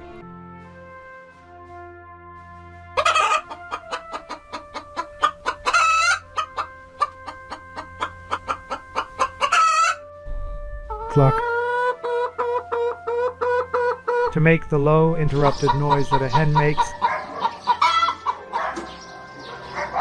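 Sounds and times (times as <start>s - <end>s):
chicken squawks: 3.0s - 10.0s, 10.9s - 14.3s, 15.3s - 20.0s
chickens clucking: 3.0s - 10.0s, 10.9s - 20.0s.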